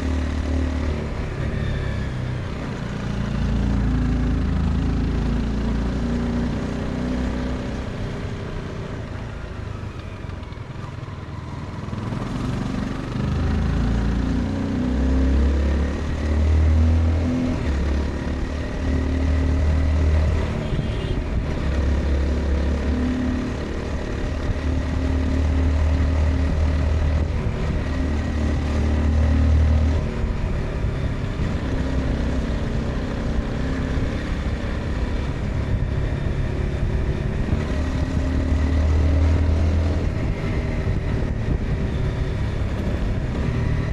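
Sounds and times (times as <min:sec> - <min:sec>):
motorcycle engine running: 0:17.6 - 0:43.9.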